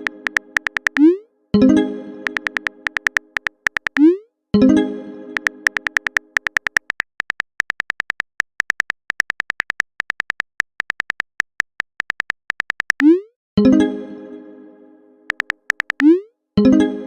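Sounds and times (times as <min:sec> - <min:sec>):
phone keyboard typing clicks: 0:00.0 - 0:01.2, 0:02.2 - 0:04.2, 0:05.4 - 0:13.2, 0:15.3 - 0:16.2.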